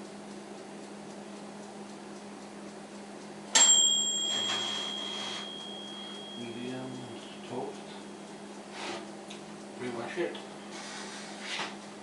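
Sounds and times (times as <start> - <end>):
low steady hum: 0.0 - 11.0
timer bell ding: 3.5 - 8.4.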